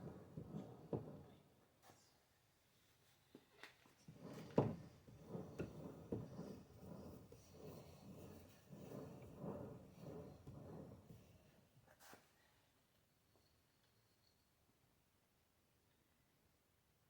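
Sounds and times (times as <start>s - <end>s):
brush rubbing paint: 4.1s - 11.7s.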